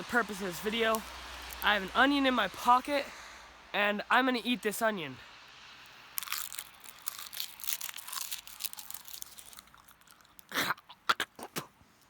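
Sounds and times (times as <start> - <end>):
dry crackling and rustling: 0.6 - 1.9, 5.8 - 10.6
onion crunching when bitten: 6.1 - 11.7.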